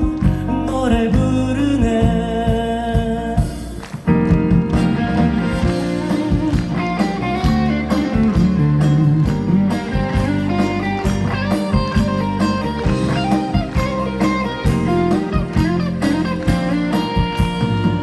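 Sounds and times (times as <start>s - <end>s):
live band playing: 0.0s - 18.0s
guitar melody: 3.8s - 18.0s.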